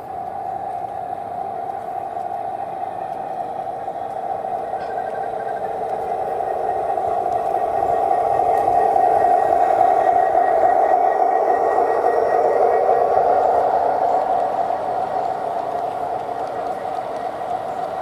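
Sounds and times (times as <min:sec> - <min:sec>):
model train rolling on track: 0:00.0 - 0:18.0.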